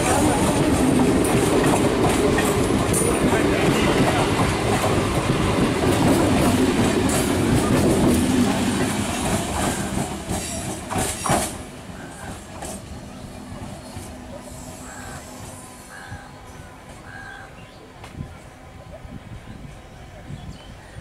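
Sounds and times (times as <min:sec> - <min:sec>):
wheels clacking over rail joints: 0:00.0 - 0:14.2
train passing: 0:00.0 - 0:21.0.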